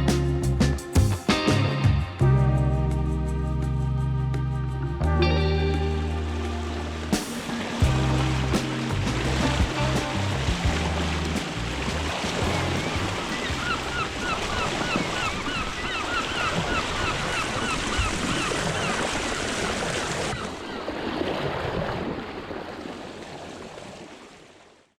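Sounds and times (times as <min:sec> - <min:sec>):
sea waves washing: 0:05.9 - 0:24.3
wind on microphone: 0:06.8 - 0:20.5.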